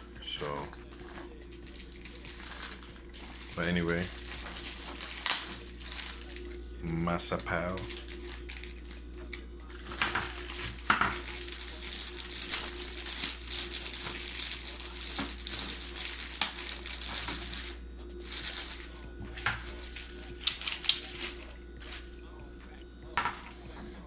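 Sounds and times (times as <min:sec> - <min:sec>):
plastic and cardboard rustling: 0:00.5 - 0:06.5, 0:09.7 - 0:22.0.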